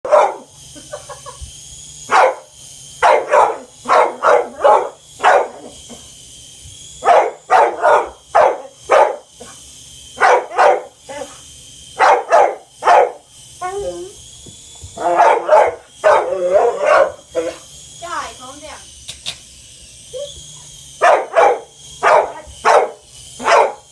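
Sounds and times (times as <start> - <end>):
dog barking excitedly: 0.0 - 0.5, 2.1 - 5.6, 7.0 - 9.2, 10.2 - 10.9, 12.0 - 13.2, 15.1 - 17.2, 21.0 - 23.9.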